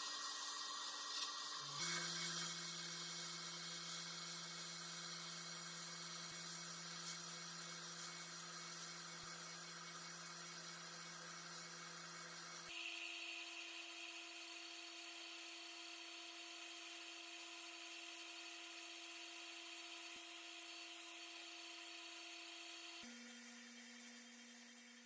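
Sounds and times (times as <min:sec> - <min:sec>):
hiss: 0:00.0 - 0:13.8
small electric motor humming: 0:00.0 - 0:25.0.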